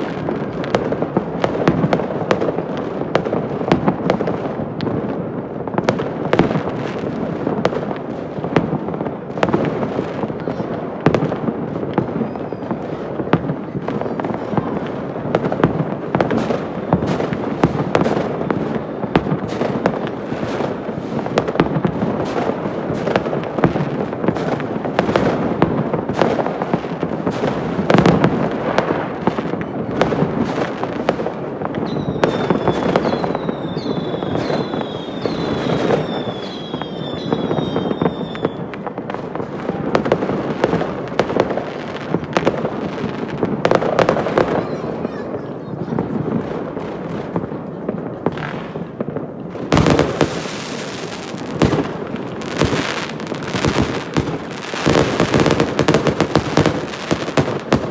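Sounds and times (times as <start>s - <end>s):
fireworks crackling and rumbling: 0.0s - 57.9s
sharp firework bangs: 5.8s - 44.9s, 48.3s - 57.9s
high firework whistles: 12.1s - 13.0s, 31.7s - 38.8s, 49.7s - 57.9s.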